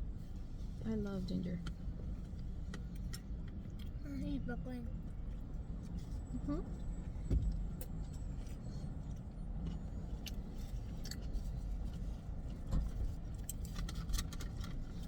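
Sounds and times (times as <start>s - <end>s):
low rumble inside a car: 0.0s - 15.0s
light clicks and rattles: 7.4s - 15.0s.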